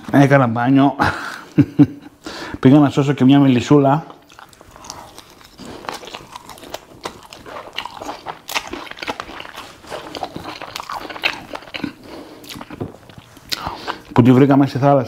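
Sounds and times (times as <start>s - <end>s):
crunchy food chewing: 4.1s - 14.4s.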